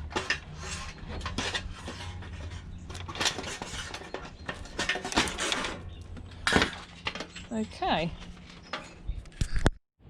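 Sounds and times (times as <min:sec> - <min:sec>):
plastic and metal parts rattling: 0:00.0 - 0:07.7.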